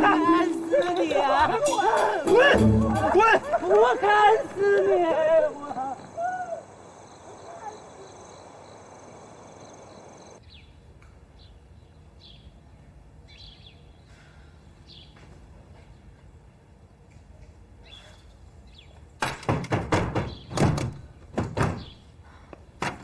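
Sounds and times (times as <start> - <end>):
person shouting: 0.0 - 4.4
small birds chirping: 5.9 - 10.8, 11.4 - 15.2.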